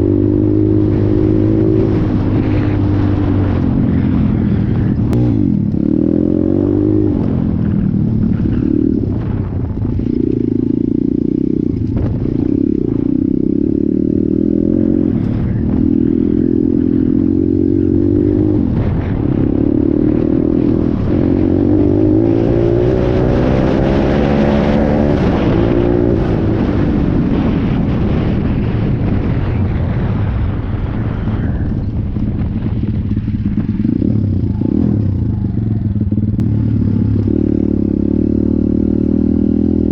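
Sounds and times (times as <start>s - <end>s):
motorbike engine revving: 0.0s - 29.3s.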